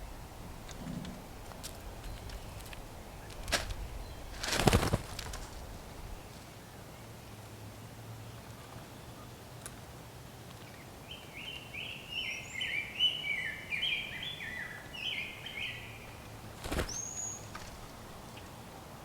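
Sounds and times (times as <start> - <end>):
bird chirping: 10.7 - 18.7.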